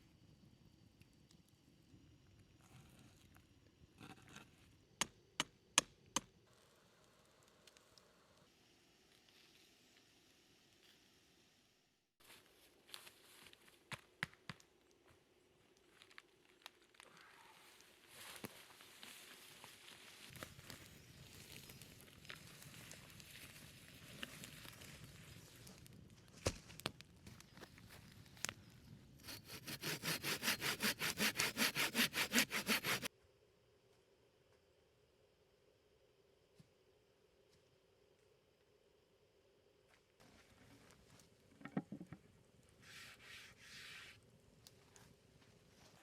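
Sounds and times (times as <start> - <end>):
quiet outdoor hiss: 0.0 - 32.0, 32.6 - 46.0
sharp snaps and crackles: 13.9 - 28.8
hand saw cutting wood: 29.2 - 33.1.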